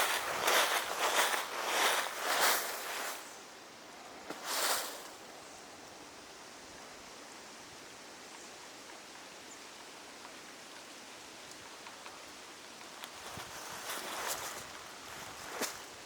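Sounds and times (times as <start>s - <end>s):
rustling noise: 0.0s - 3.5s, 4.2s - 5.3s, 12.8s - 16.0s
forest ambience hiss: 0.0s - 16.0s
faint ticks: 8.3s - 14.9s.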